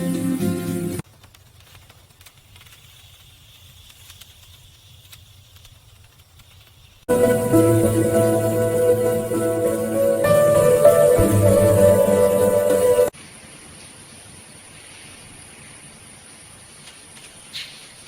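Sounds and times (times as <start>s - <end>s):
soft hiss: 1.0s - 13.1s
guitar music: 7.1s - 13.1s.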